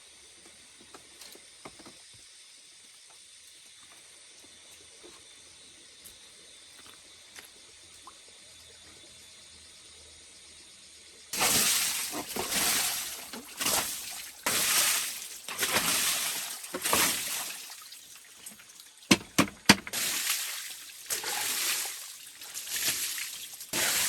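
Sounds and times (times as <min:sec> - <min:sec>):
water sloshing and splashing: 0:11.4 - 0:24.0
sharp knocks: 0:19.1 - 0:19.9.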